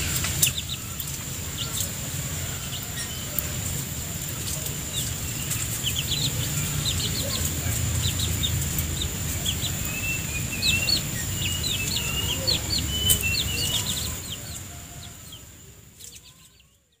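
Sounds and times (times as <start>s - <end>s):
steady high-pitched whine: 0.0s - 16.0s
birds chirping: 0.0s - 17.0s.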